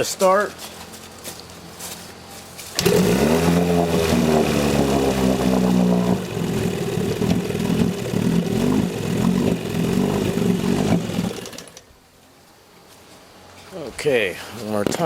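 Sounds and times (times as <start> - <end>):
outboard motor running unevenly: 0.7 - 11.9.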